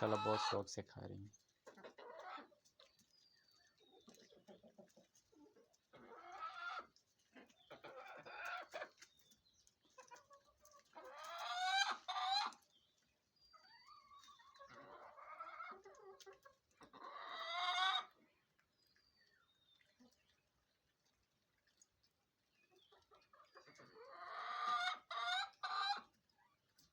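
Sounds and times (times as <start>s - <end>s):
hens clucking: 0.0s - 12.7s, 13.5s - 18.4s, 22.5s - 26.9s.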